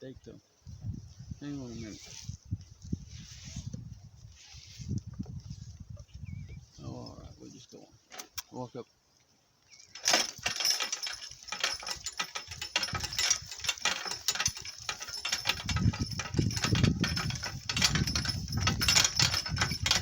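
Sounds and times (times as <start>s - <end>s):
cart rattling over rough ground: 9.9s - 20.0s.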